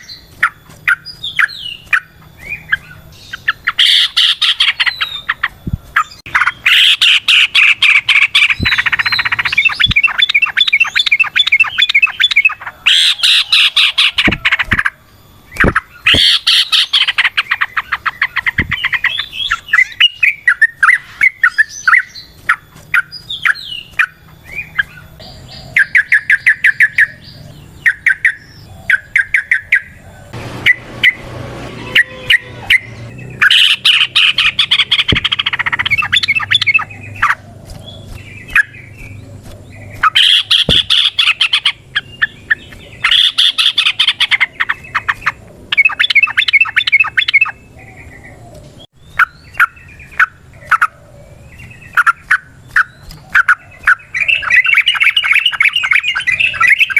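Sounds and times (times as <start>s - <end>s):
bulbul singing: 0.0s - 56.9s.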